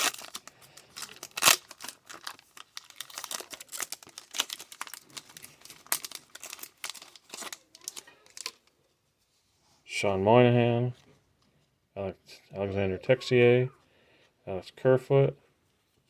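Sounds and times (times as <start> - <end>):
card pack wrapper crinkling and tearing: 0.0 - 8.7.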